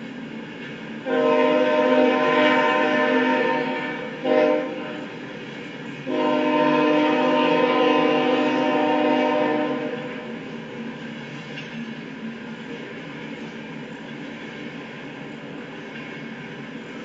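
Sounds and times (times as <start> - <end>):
locomotive air horn blasts: 1.1 - 5.2, 6.1 - 10.4.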